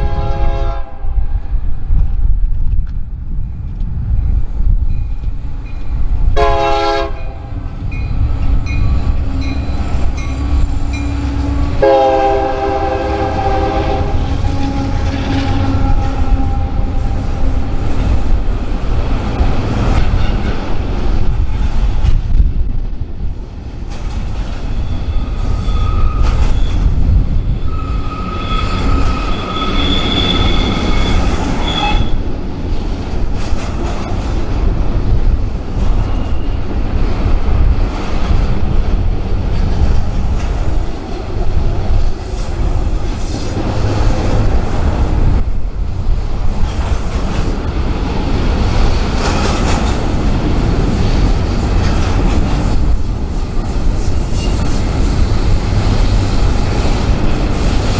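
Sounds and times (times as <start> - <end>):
freight train rumbling past: 0.0 - 57.9
steel wheel squeal: 8.0 - 11.8, 24.6 - 32.3, 36.0 - 36.8, 53.6 - 57.9.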